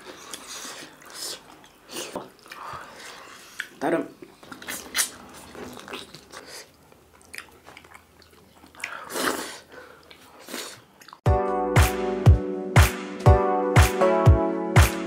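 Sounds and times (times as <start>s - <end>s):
chewing and wet mouth smacks: 0.0s - 11.2s
music with heavy beat: 11.3s - 15.0s.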